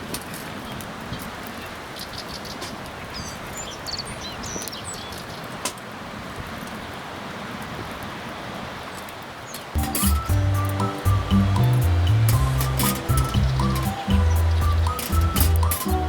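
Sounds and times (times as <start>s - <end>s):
bird chirps: 9.5s - 16.0s.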